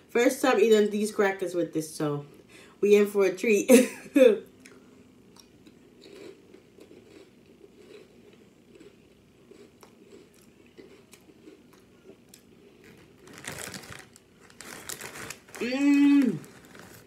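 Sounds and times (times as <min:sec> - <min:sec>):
person chewing cracker: 0:04.6 - 0:15.6, 0:16.3 - 0:17.0
crackling rustle: 0:12.8 - 0:17.0.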